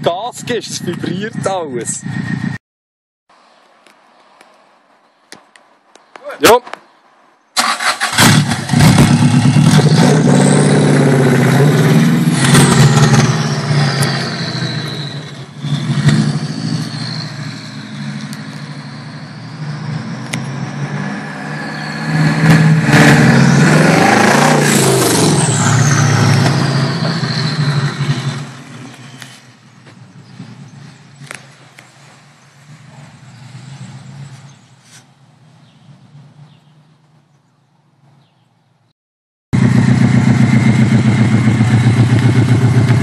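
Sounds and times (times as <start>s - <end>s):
loud car engine revving: 7.6s - 34.7s, 39.6s - 43.0s.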